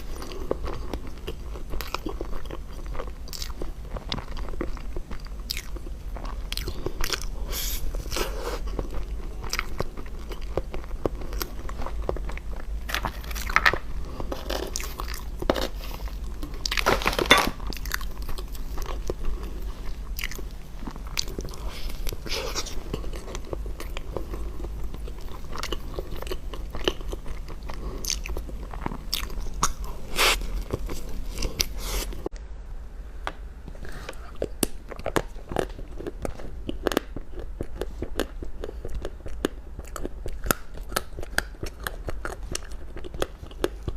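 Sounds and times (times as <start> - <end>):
chewing crunchy food: 0.0 - 32.3, 33.8 - 43.9.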